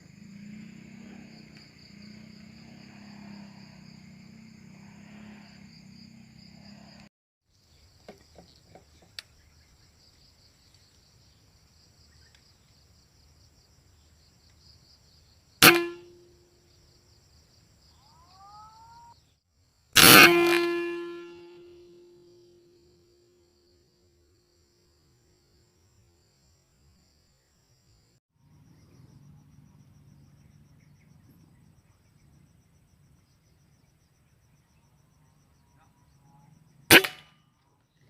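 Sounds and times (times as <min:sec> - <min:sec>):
insects buzzing: 0:00.0 - 0:36.9
air rifle shot: 0:15.6 - 0:16.1, 0:36.9 - 0:37.3
short ringing tone: 0:20.2 - 0:22.3.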